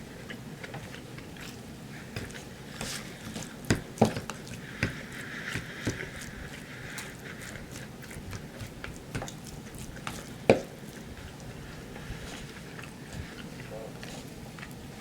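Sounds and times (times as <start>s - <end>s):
man chewing food: 0.0s - 15.0s.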